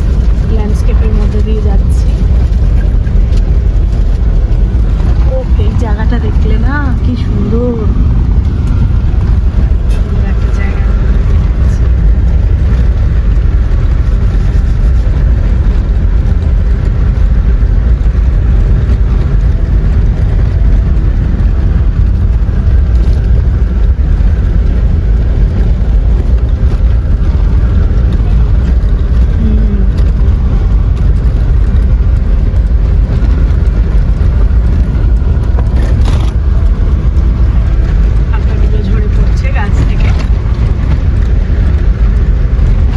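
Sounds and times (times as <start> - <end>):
car road and engine rumble: 0.0 - 42.9.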